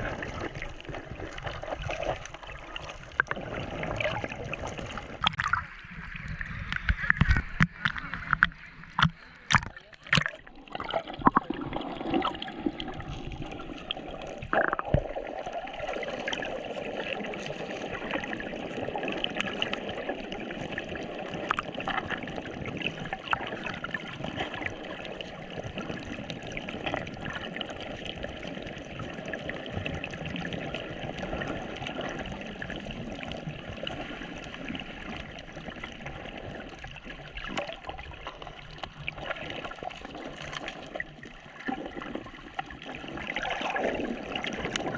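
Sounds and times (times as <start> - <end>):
sea water gurgling: 0.0 - 44.9
small clicks and pops: 6.6 - 10.4.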